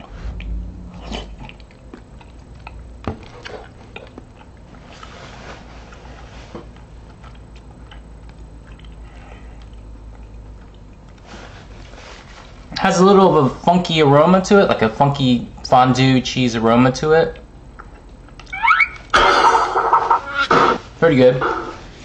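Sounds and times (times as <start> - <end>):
man chewing soup: 0.0 - 12.6, 17.4 - 19.1.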